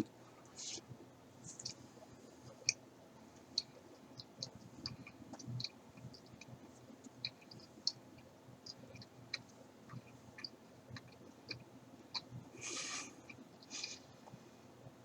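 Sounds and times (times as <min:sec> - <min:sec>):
person chewing with mouth clicks: 0:03.5 - 0:14.4.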